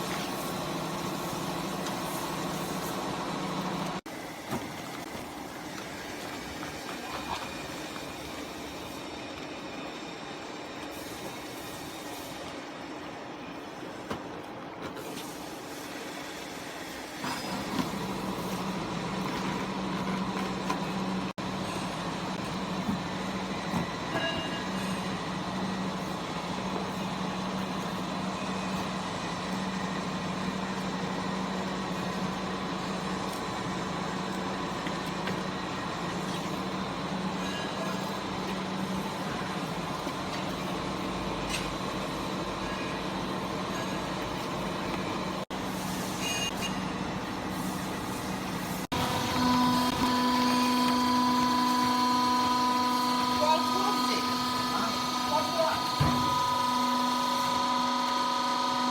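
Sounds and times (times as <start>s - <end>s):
hydraulic power unit humming: 17.2s - 58.9s.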